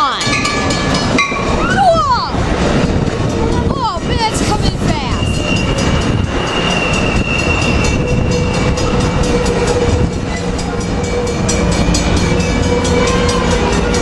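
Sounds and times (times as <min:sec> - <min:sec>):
wheels clicking over rail joints: 0:00.0 - 0:14.0
brakes squealing: 0:02.8 - 0:14.0.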